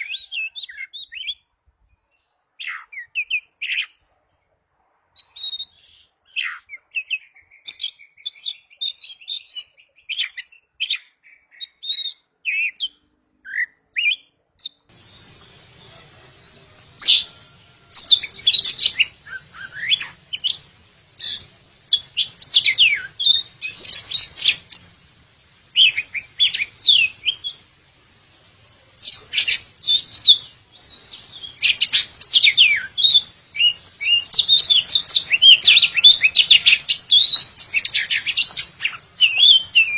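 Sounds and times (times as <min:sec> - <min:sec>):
bird singing: 0:00.0 - 0:04.5, 0:05.2 - 0:39.9
faint steady hum: 0:14.9 - 0:39.9.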